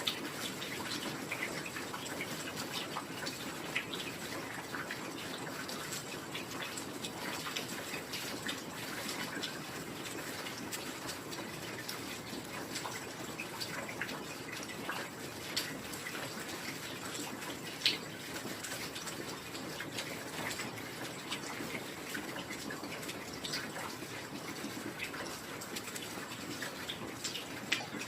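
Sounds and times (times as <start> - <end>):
raindrops ticking and splashing: 0.0 - 28.0.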